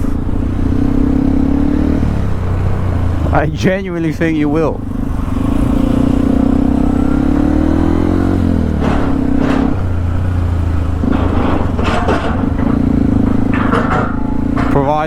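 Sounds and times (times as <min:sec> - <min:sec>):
motorcycle engine changing gears: 0:00.0 - 0:15.0
short clattering knocks: 0:08.2 - 0:15.0.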